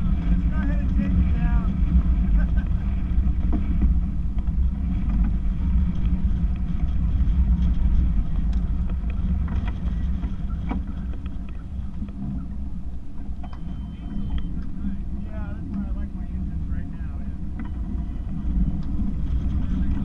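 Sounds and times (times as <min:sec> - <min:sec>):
boat rumble in gusty wind: 0:00.0 - 0:20.0
faint knocks and clicks: 0:01.8 - 0:15.0, 0:17.5 - 0:20.0.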